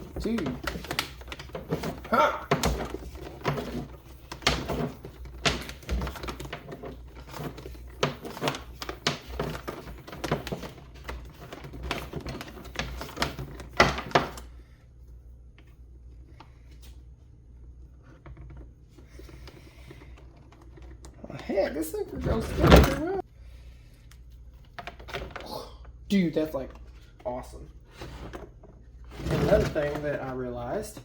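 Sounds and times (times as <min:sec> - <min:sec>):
plastic parts clicking and rattling: 0:00.0 - 0:14.5.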